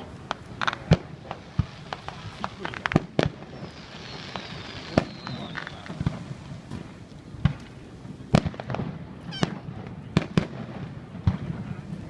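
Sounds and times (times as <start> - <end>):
fireworks bangs: 0.0 - 12.0
faint falling whistle: 4.0 - 6.0.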